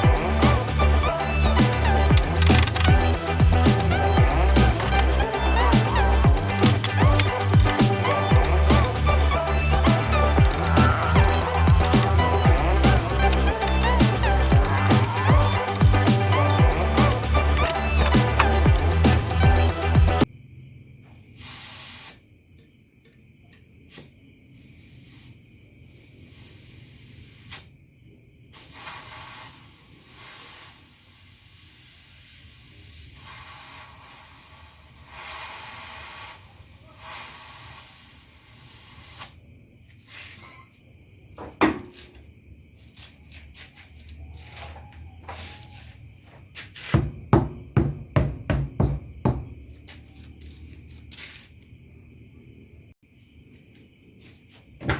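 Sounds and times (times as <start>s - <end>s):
hissing: 0.0s - 20.2s, 28.6s - 39.4s
high insect chirring: 0.0s - 20.3s, 23.9s - 27.8s, 28.5s - 41.4s, 42.0s - 54.6s
knocks: 41.4s - 42.0s, 46.8s - 49.7s.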